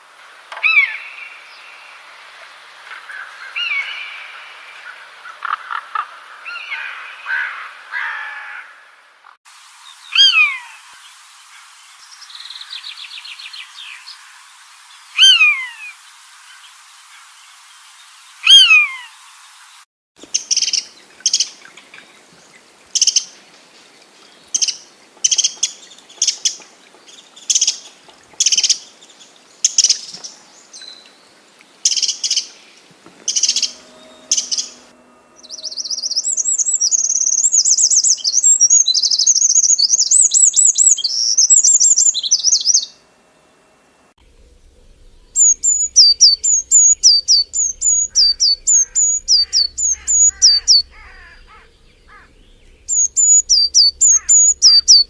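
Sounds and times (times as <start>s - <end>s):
falling bird call: 10.1s - 10.9s, 15.2s - 16.0s, 31.8s - 42.6s, 44.4s - 55.0s
fast high bird warble: 10.1s - 10.9s, 15.2s - 15.9s, 31.9s - 42.9s, 44.4s - 55.0s
high bird notes: 31.8s - 43.0s, 44.3s - 55.0s
short sharp bird chirps: 45.4s - 52.3s.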